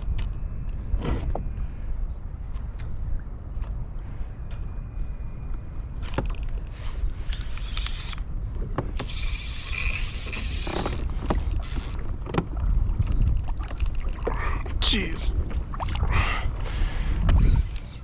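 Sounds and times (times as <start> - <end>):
wind rumble on microphone: 0.0 - 18.0
reel clicks: 6.2 - 8.3, 9.0 - 12.4
fishing reel whirring: 7.3 - 8.2, 9.0 - 12.0.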